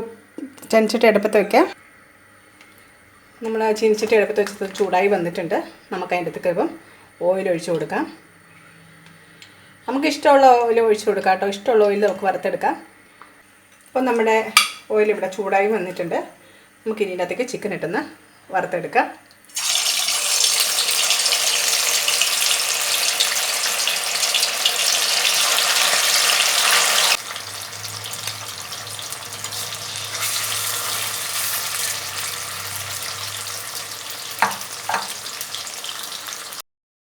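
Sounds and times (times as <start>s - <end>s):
chicken sizzling in hot oil: 19.5s - 36.6s.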